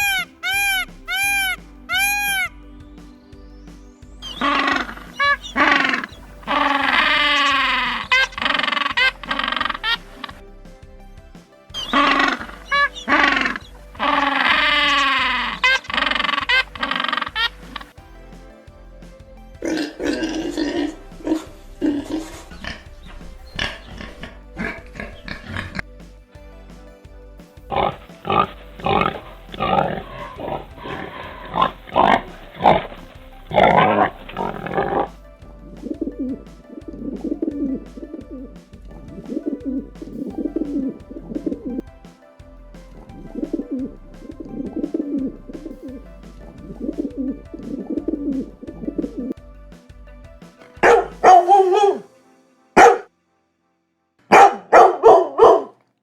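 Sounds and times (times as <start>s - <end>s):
repeated low animal calls: 4.2s - 10.4s, 19.6s - 25.8s.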